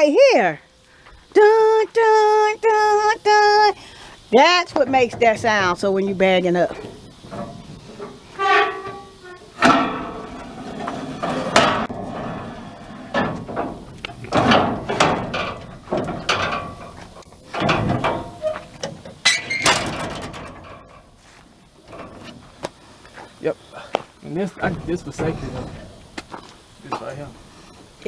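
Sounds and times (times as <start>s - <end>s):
metallic clanks and knocks: 6.6s - 21.2s, 21.8s - 22.6s, 24.6s - 27.3s.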